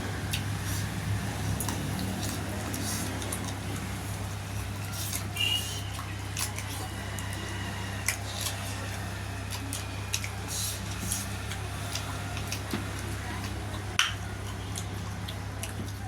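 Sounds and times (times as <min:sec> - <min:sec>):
wet chewing and lip smacks: 0:04.6 - 0:16.0.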